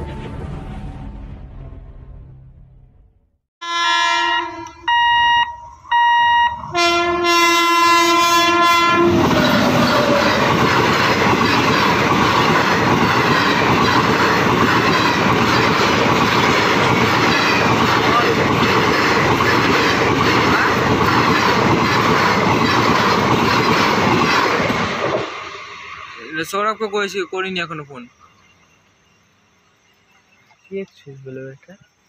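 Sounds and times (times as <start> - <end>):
locomotive horn blasts: 3.6 - 9.3
train coaches rumbling and clattering: 4.5 - 29.2.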